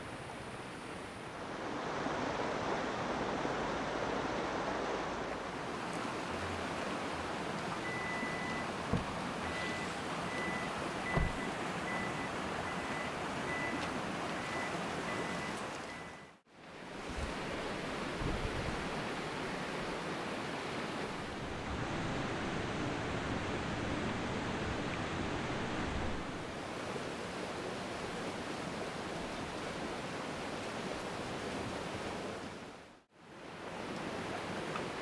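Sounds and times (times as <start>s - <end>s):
river flowing over rocks: 0.1s - 35.0s
faint high pulsing tone: 7.8s - 8.6s, 9.4s - 13.8s
low thumps: 11.1s - 11.5s.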